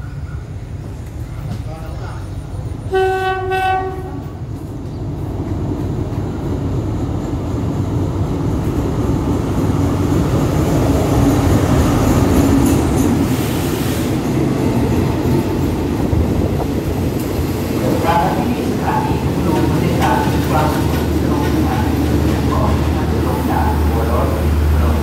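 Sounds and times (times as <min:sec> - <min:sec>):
diesel locomotive engine: 0:00.0 - 0:25.0
train wheels on rails: 0:00.0 - 0:25.0
train horn blast: 0:02.9 - 0:04.4.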